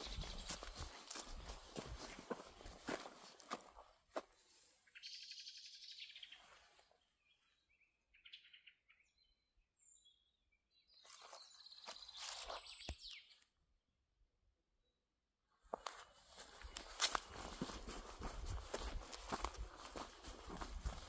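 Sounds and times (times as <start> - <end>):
footsteps: 0.0 - 4.3, 15.7 - 21.0
small birds singing: 0.0 - 13.4, 16.5 - 21.0.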